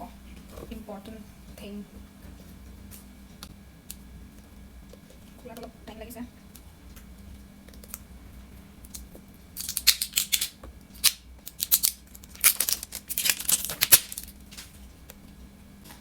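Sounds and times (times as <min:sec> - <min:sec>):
packaging seal tearing: 0:09.6 - 0:14.3.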